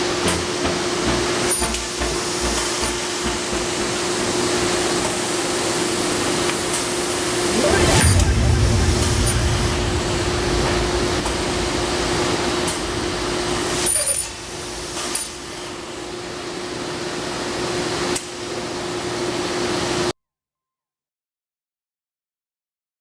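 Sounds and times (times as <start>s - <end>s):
circular saw motor whirring: 0.1s - 16.1s.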